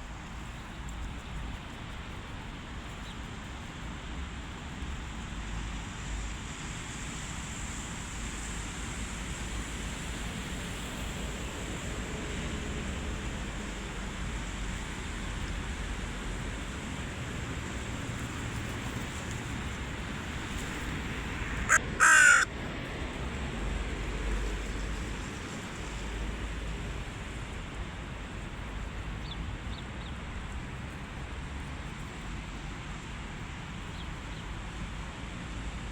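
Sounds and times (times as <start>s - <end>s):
crow cawing: 21.7s - 22.5s.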